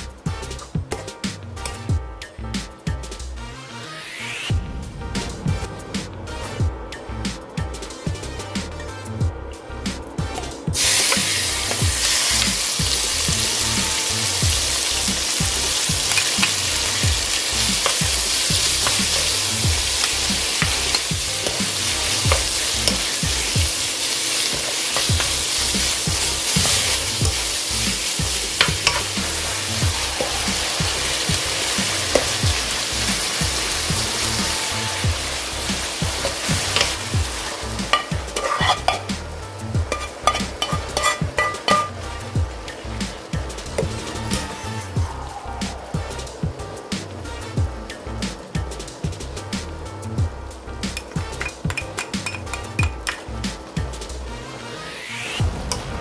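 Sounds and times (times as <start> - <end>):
meat sizzling in oil: 10.3 - 45.2, 45.8 - 54.0
wooden spatula scraping a pan: 15.0 - 39.1, 39.8 - 45.0.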